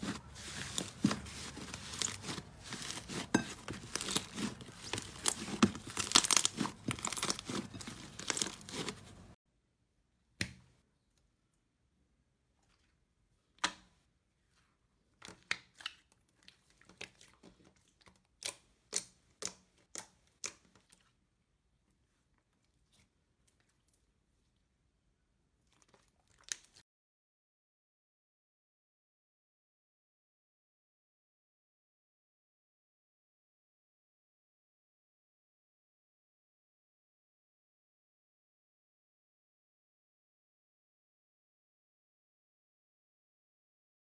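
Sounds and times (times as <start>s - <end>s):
slime squeezed and crackling: 0.4s - 9.3s.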